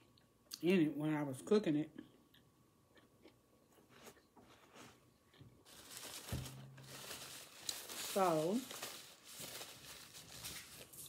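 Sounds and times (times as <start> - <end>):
chewing and mouth clicks: 2.1 - 4.3
tissue rustling: 5.6 - 11.0.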